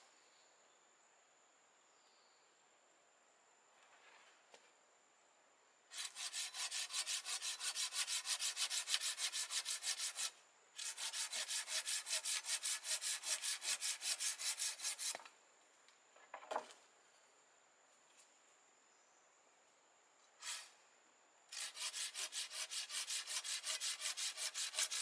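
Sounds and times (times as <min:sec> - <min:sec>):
hand saw cutting wood: 0:05.9 - 0:15.3, 0:20.4 - 0:20.7, 0:21.5 - 0:25.0.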